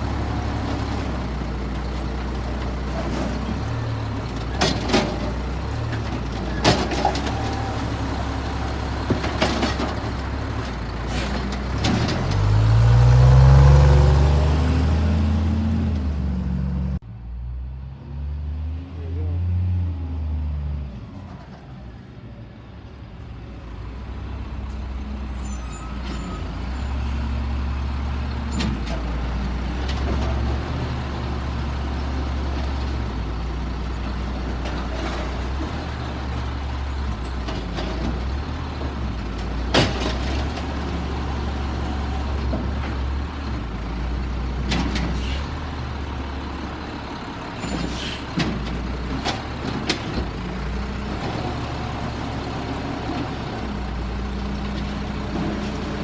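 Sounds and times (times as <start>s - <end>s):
garbage truck engine running: 0.0s - 17.0s.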